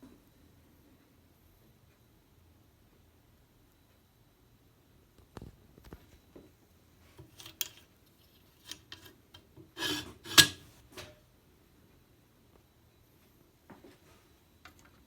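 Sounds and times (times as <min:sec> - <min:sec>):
handling clicks and rubbing: 0:07.2 - 0:10.8
short scrape: 0:09.8 - 0:10.8.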